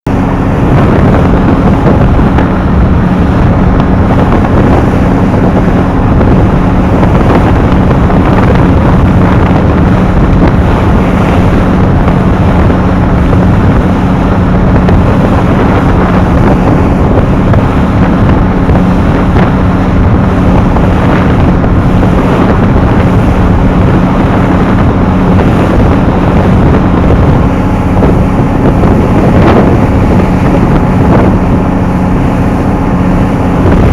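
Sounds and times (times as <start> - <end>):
boat engine drone: 0.0 - 33.9
wind buffeting microphone: 0.0 - 33.9.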